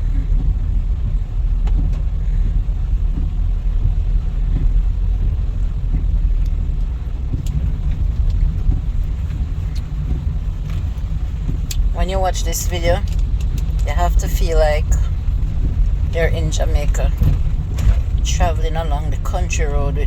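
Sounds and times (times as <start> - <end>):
car engine and road noise: 0.0 - 20.0
faint ticks: 1.6 - 11.9.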